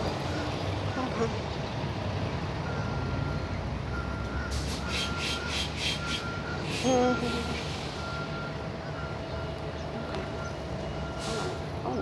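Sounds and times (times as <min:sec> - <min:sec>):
buses and traffic rumble: 0:00.0 - 0:12.0
faint beeping tone: 0:02.6 - 0:12.0.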